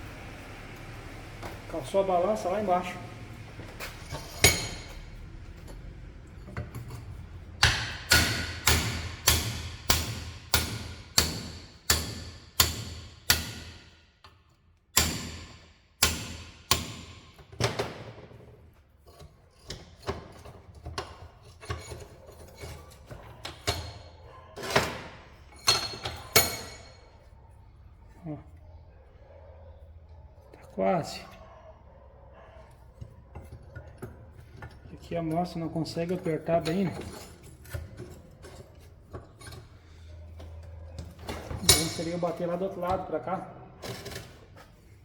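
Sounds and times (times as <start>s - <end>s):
hammer striking metal: 7.6s - 13.9s.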